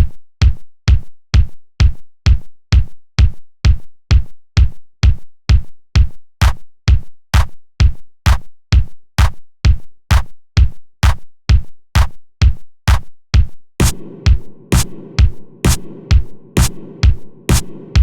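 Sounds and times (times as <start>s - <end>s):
drum machine kick drum beat: 0.0s - 18.0s
bright drum hits: 13.8s - 18.0s.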